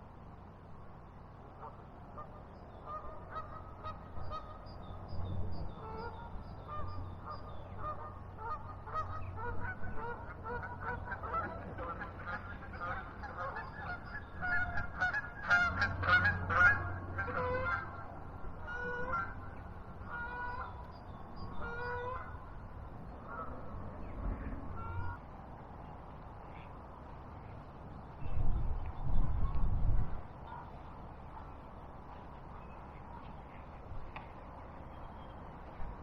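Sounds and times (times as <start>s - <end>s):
flock of birds calling: 5.8s - 20.9s.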